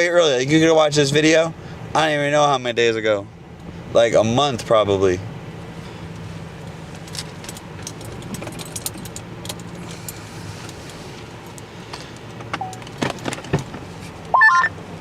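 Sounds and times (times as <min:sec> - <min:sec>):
car engine and road hum: 0:00.0 - 0:15.0
metallic jingling and clicking: 0:07.0 - 0:10.2.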